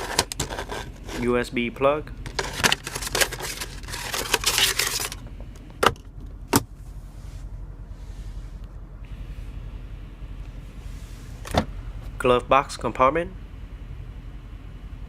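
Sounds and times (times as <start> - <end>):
cables and plastic parts rattling: 0.0 - 1.4, 2.1 - 6.3.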